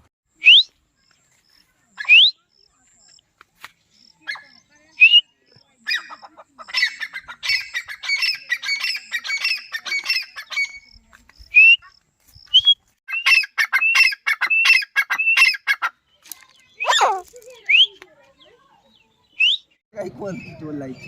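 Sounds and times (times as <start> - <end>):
francolin calling: 1.9 - 3.2, 3.9 - 15.8.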